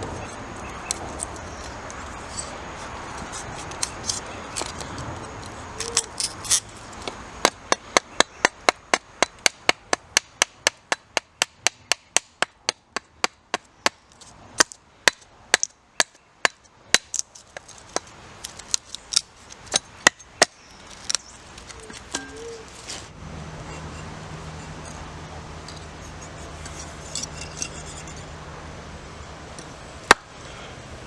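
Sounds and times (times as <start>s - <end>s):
blade chopping wood: 30.1s - 30.3s.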